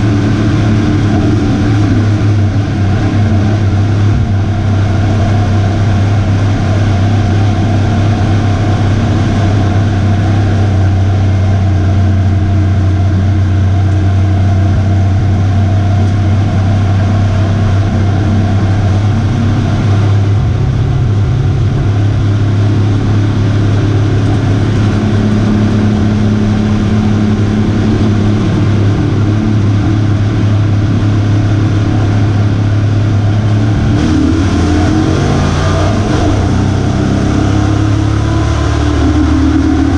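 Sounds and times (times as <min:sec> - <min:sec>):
truck engine droning: 0:00.0 - 0:39.9.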